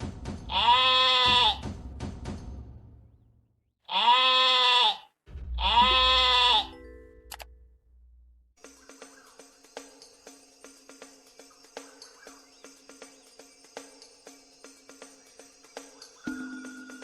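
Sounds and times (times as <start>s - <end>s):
farm animal bleating: 0.5s - 1.6s, 3.9s - 6.8s.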